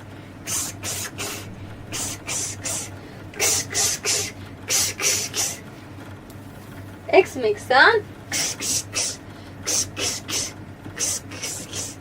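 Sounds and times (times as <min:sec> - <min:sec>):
person making hissed ks sound: 0:00.4 - 0:05.6, 0:08.3 - 0:12.0.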